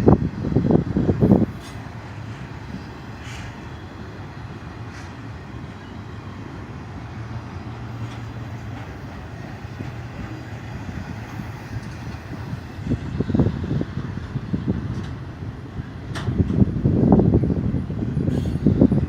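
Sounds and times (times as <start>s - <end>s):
freight train rolling past: 0.0s - 19.0s
faint rail clicks: 7.9s - 12.6s.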